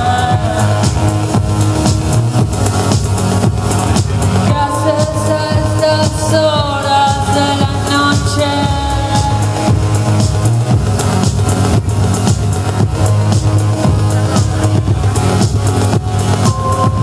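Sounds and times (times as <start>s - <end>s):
live band playing: 0.0s - 17.0s
pitch-bending lead melody: 0.0s - 17.0s.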